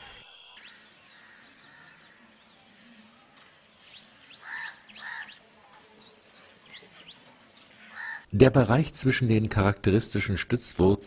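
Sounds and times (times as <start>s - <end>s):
birds chirping: 0.0s - 8.3s
harsh bird calls: 0.0s - 8.3s.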